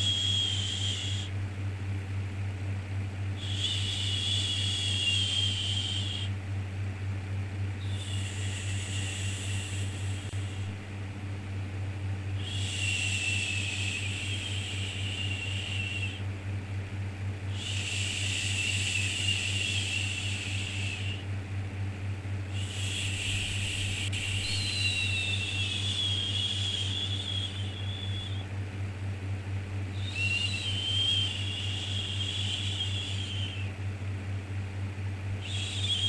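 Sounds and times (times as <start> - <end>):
low hum: 21.9 - 36.0.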